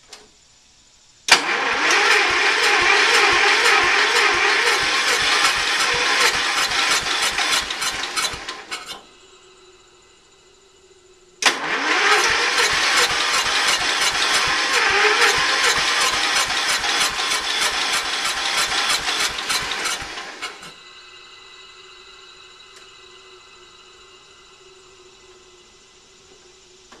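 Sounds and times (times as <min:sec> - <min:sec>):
engine cranking slowly: 0:01.3 - 0:09.1, 0:11.4 - 0:20.8.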